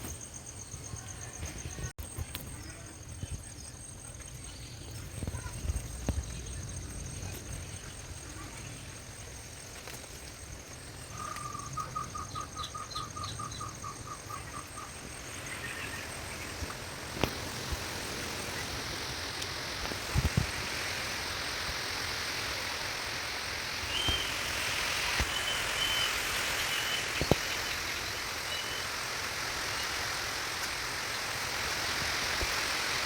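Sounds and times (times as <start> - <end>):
insects trilling: 0.0 - 33.0
rain rushing hiss: 4.4 - 33.0.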